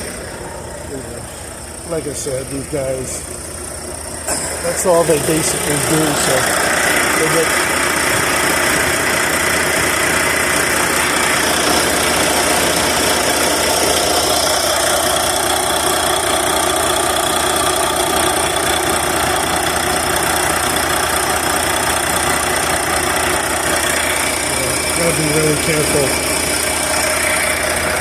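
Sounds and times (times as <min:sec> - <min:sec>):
truck diesel engine idling: 0:00.0 - 0:28.0.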